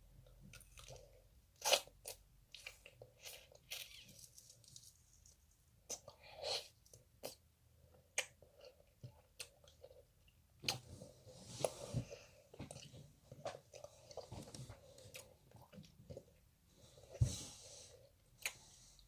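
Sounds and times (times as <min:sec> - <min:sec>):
candy shell crunching: 0:03.3 - 0:05.5.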